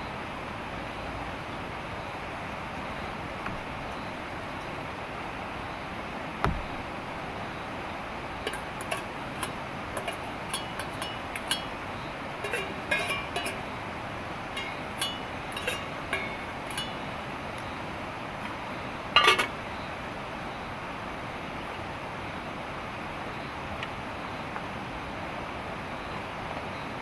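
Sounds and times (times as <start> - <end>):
heavy rain hissing: 0.0 - 26.5
small hard objects clinking: 12.4 - 13.6.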